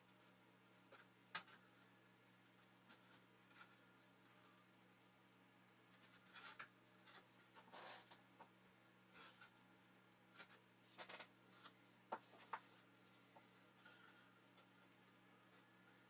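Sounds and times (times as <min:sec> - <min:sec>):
scratching and rubbing strokes: 0:05.9 - 0:14.1.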